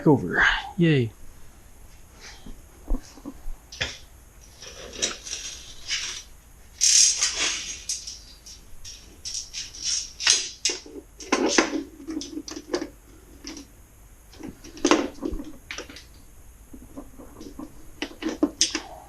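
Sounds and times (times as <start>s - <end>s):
metal tools clattering: 4.4s - 6.2s, 6.8s - 13.6s.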